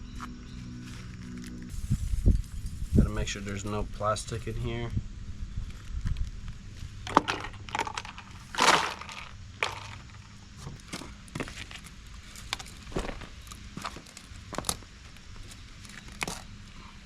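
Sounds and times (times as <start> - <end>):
metal scraping crunch: 5.6 - 17.0.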